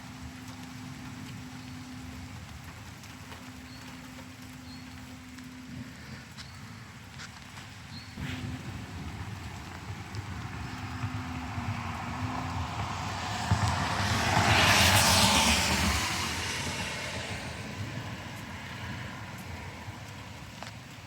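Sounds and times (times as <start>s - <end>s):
vehicle passing by: 8.2s - 20.7s.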